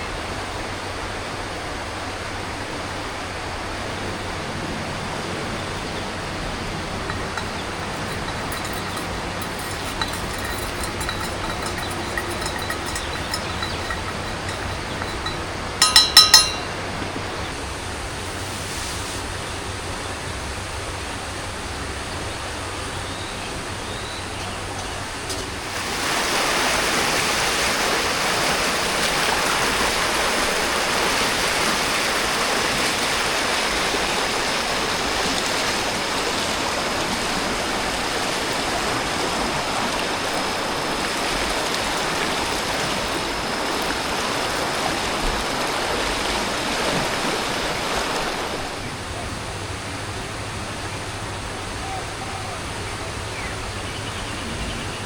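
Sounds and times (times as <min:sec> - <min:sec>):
flowing water rushing: 0:00.0 - 0:23.0, 0:24.4 - 0:53.8
thin high steady tone: 0:06.8 - 0:16.8.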